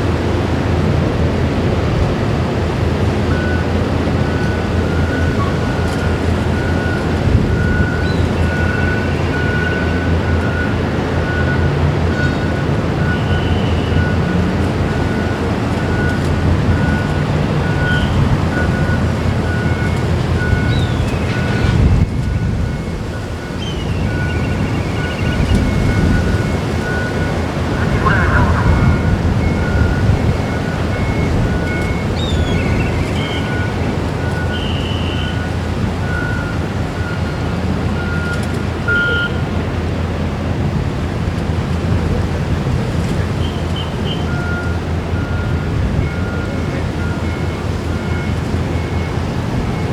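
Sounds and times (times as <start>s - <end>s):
wind on microphone: 20.3s - 33.0s
faint short beeps: 23.7s - 30.3s, 38.2s - 39.4s
low rumble: 26.4s - 30.7s
high chirps: 26.5s - 29.8s
short high electronic beep: 27.7s - 29.9s.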